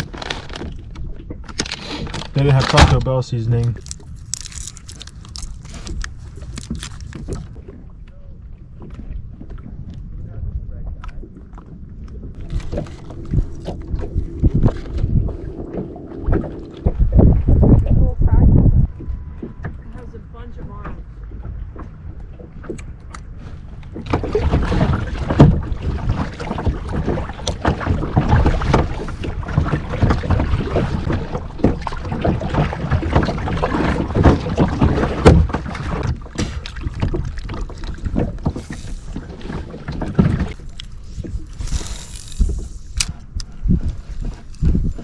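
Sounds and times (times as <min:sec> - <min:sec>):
wind rumbling on microphone: 0:00.0 - 0:45.0
paddle strokes splashing in water: 0:19.4 - 0:45.0.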